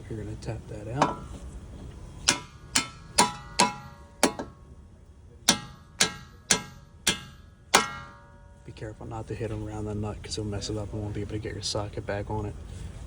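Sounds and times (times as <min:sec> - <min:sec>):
hammer striking metal: 0:01.0 - 0:01.4, 0:02.2 - 0:04.6, 0:05.4 - 0:08.6.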